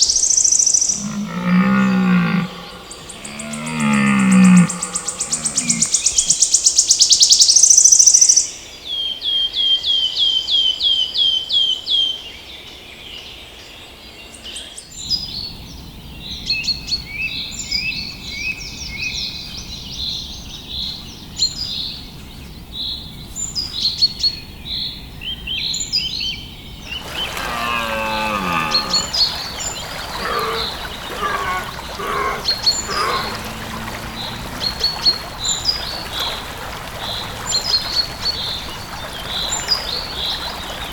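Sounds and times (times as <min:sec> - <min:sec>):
birds chirping: 0:00.0 - 0:06.4, 0:26.7 - 0:40.9.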